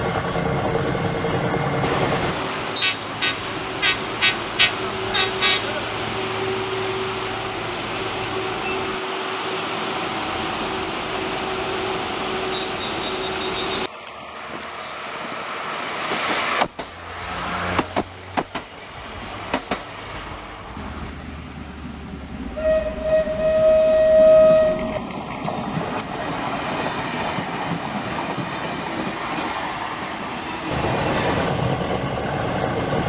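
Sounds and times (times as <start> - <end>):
train wheels clicking on rail joints: 0.0 - 5.8, 12.5 - 20.8, 24.6 - 33.0
train engine humming: 0.0 - 33.0
train passing close by: 0.0 - 33.0.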